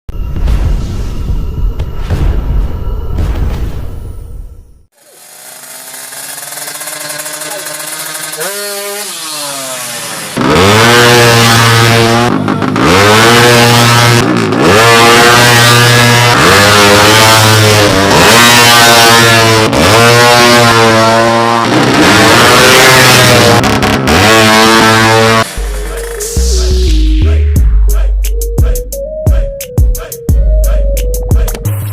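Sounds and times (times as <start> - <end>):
motorbike engine revving hard: 4.9 - 26.6.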